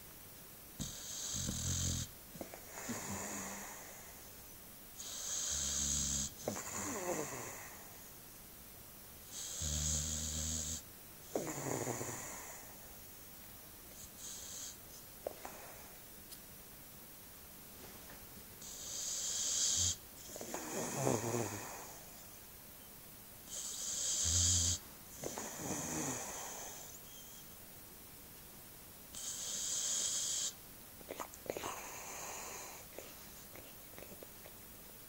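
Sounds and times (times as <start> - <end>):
dog snoring: 0.8 - 4.2, 5.0 - 8.0, 9.3 - 12.8, 13.9 - 14.8, 18.6 - 22.2, 23.5 - 27.4, 29.1 - 34.2.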